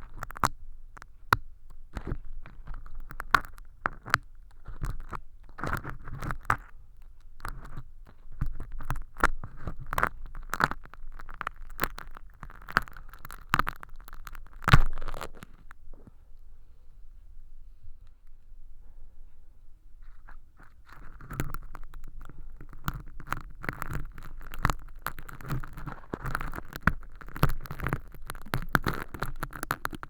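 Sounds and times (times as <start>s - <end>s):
crinkling film being scraped: 8.4s - 15.7s, 20.6s - 30.0s.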